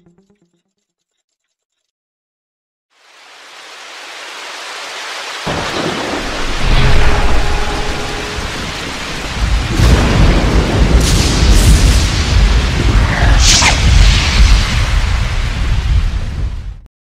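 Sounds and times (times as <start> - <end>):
rain hiss: 2.9 - 16.6
deep rolling thunder: 5.5 - 16.8.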